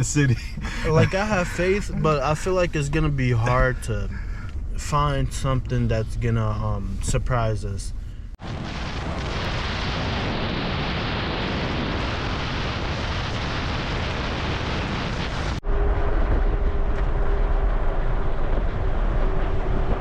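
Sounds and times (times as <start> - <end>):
faint steady hum: 0.0 - 8.4
low rumble: 0.0 - 20.0
vehicle road noise rushing: 15.5 - 20.0.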